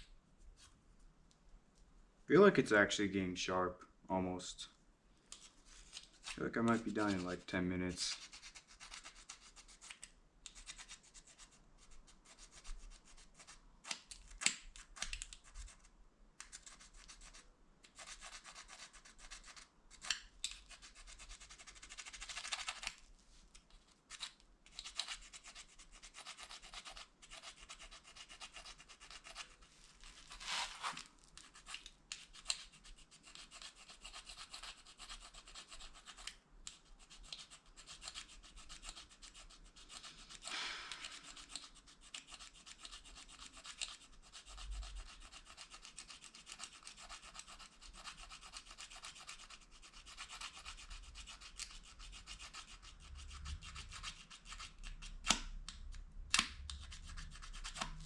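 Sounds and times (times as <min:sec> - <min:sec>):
plastic fork scraping plastic spoon: 0:24.1 - 0:55.2.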